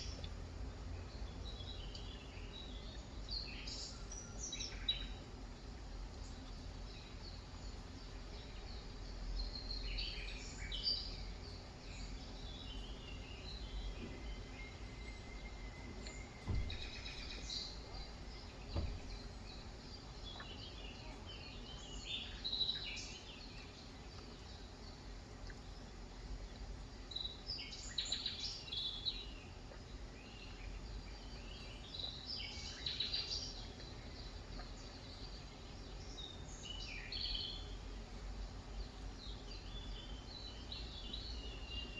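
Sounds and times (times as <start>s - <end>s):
wild birds chirping: 0.0s - 41.9s
faint knocks: 15.9s - 19.4s.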